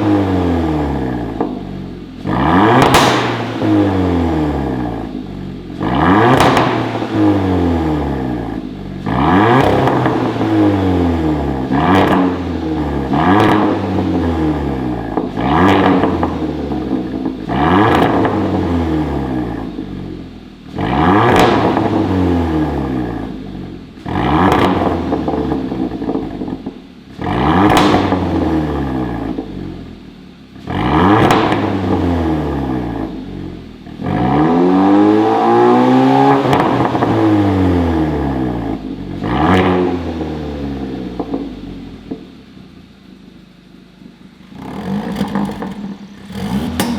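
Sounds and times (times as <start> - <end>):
car engine revving: 0.0 - 26.4, 44.4 - 46.9.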